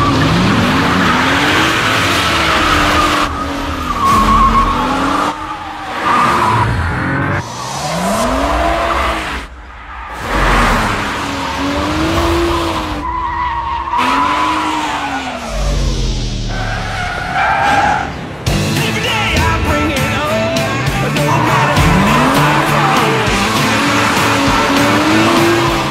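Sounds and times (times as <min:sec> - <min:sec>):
tyres squealing: 0:00.0 - 0:07.0, 0:19.0 - 0:25.9
car engine revving: 0:00.0 - 0:25.9.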